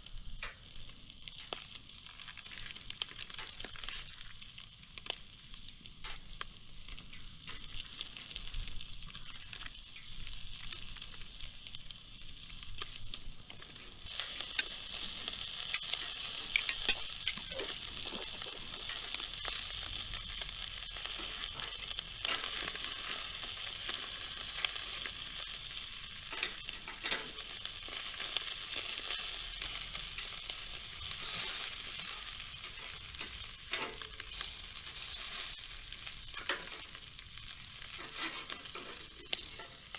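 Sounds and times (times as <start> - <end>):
food sizzling in pan: 0.0 - 39.9
stirring and scraping: 14.1 - 19.3, 38.0 - 39.8.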